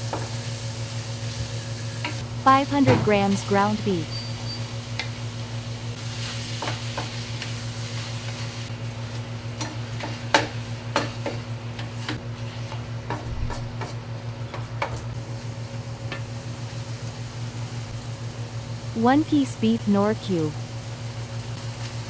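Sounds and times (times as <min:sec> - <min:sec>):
meat frying in a pan: 0:00.0 - 0:02.4, 0:04.3 - 0:18.7, 0:21.0 - 0:22.0.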